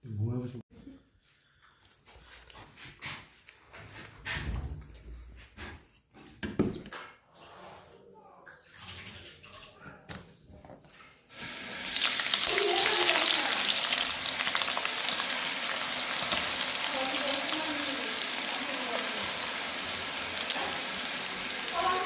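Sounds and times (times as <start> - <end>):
food sizzling in hot oil: 11.4 - 22.0.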